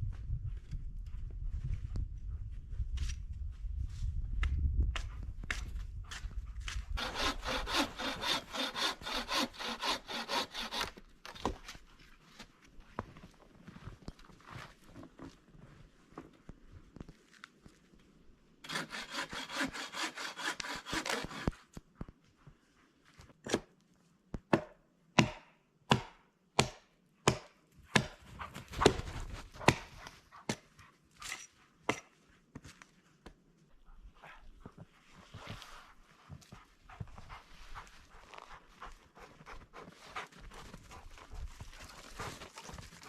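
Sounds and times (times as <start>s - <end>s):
hand saw cutting wood: 7.0s - 11.7s, 18.6s - 21.6s, 28.8s - 30.6s
chopping knocks on wood: 24.5s - 28.2s.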